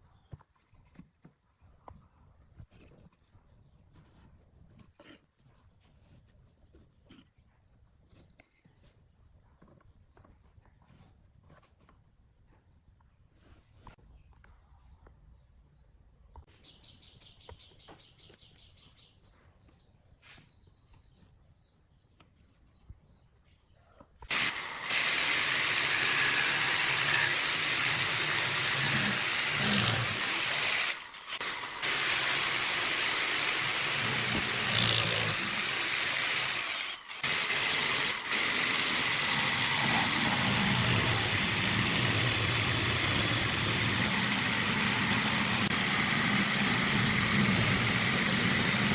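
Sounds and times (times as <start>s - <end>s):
loud hissing machine: 24.3s - 48.9s.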